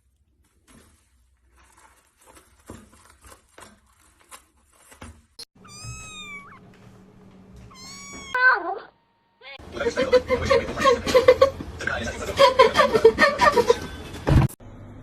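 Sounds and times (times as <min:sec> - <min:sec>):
cat meowing: 0:05.6 - 0:06.6, 0:07.6 - 0:09.6.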